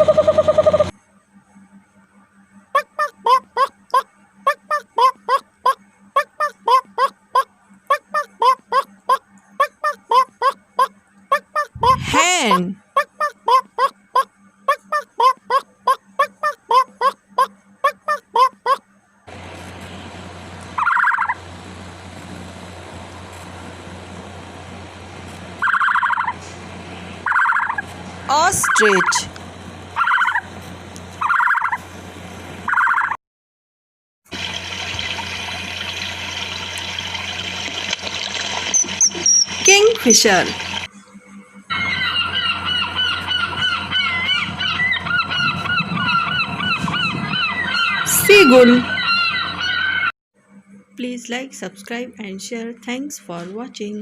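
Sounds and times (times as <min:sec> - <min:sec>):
steady low hum: 0:00.0 - 0:32.7, 0:34.4 - 0:54.0
hen calling: 0:20.8 - 0:21.4, 0:27.3 - 0:29.3, 0:30.0 - 0:30.5, 0:41.7 - 0:50.1.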